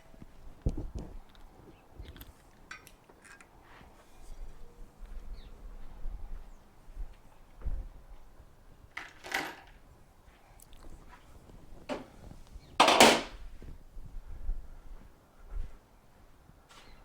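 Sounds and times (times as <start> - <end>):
tools and metal parts clattering: 2.6 - 3.5, 8.9 - 9.8, 12.8 - 13.4.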